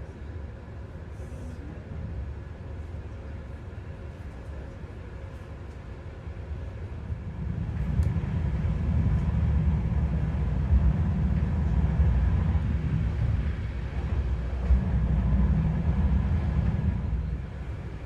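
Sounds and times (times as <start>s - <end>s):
train rumble inside carriage: 0.0s - 18.0s.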